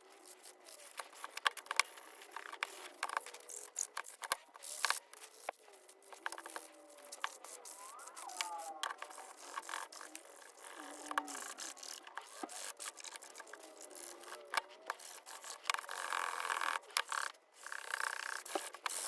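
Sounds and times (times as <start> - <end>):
sandpaper rubbing on metal: 9.0 - 19.0.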